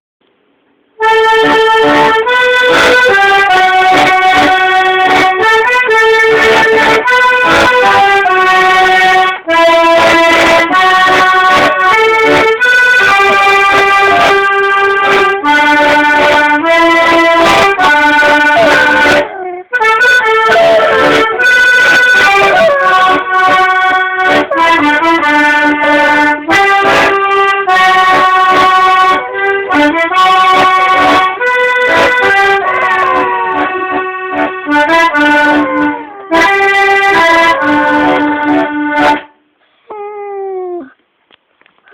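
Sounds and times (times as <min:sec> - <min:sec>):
button accordion playing chords: 0:01.0 - 0:39.4
dog howling: 0:10.7 - 0:14.6, 0:18.0 - 0:23.2, 0:32.2 - 0:34.0, 0:35.1 - 0:38.0.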